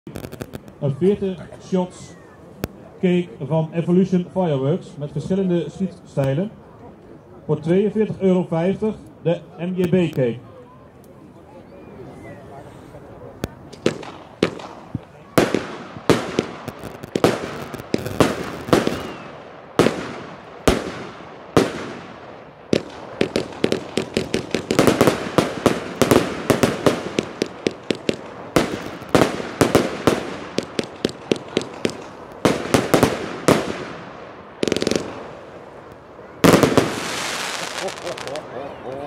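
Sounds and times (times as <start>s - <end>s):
firework bangs: 0.1s - 0.8s, 13.4s - 38.6s.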